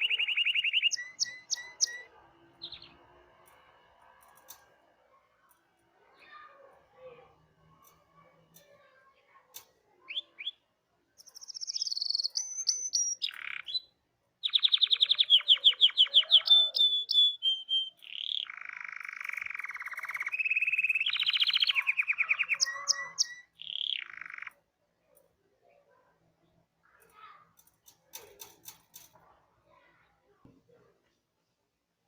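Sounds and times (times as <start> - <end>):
canary singing: 0.0 - 3.2, 10.0 - 24.6
faint clicks: 9.5 - 9.8, 27.0 - 29.2.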